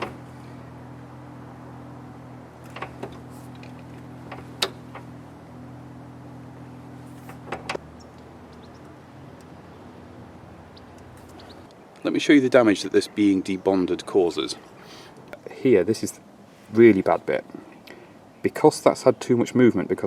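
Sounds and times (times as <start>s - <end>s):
low hum: 0.0s - 11.9s.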